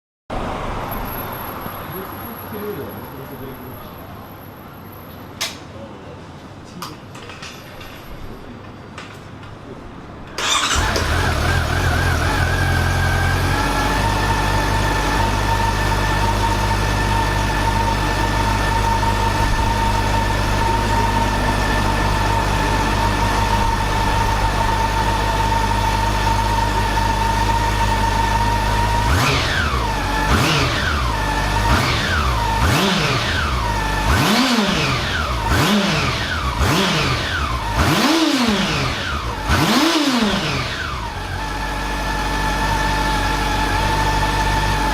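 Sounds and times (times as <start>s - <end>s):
motorcycle engine idling and revving: 10.4s - 44.9s.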